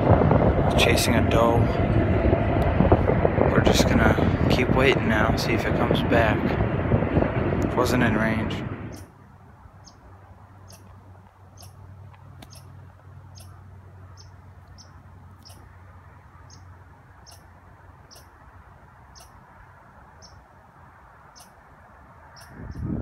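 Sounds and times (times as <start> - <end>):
low steady hum: 0.0 - 23.0
faint outdoor hiss: 7.6 - 23.0.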